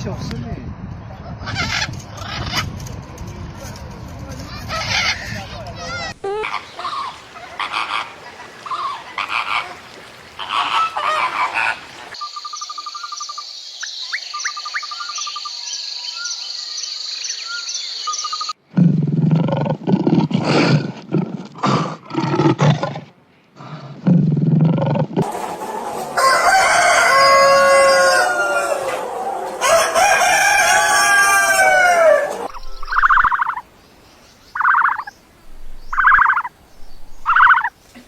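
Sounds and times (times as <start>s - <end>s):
pitched animal calls: 4.7s - 12.1s, 27.5s - 33.6s, 34.6s - 35.1s, 35.9s - 36.5s, 37.2s - 37.7s
deep roaring calls: 25.2s - 33.6s
birds singing: 31.4s - 37.9s.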